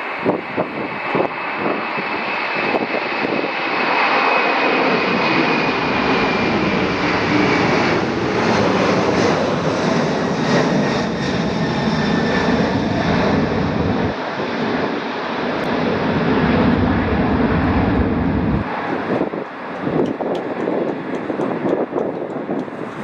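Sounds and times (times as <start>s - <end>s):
jet engines running: 0.0s - 23.0s.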